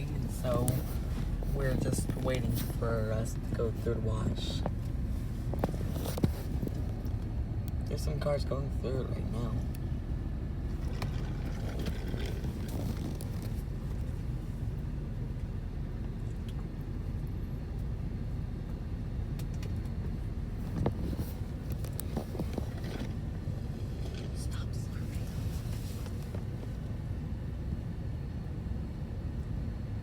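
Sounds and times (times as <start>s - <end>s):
car engine idling: 0.0s - 28.5s.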